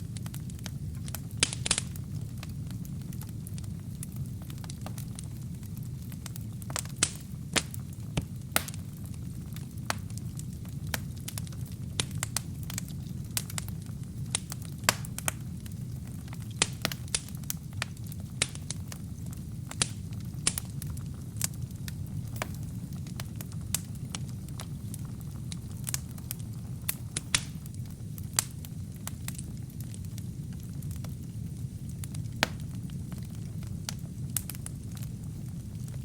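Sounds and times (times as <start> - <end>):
wood fire crackling and popping: 0.0 - 36.0
steady low rumble: 18.6 - 29.1.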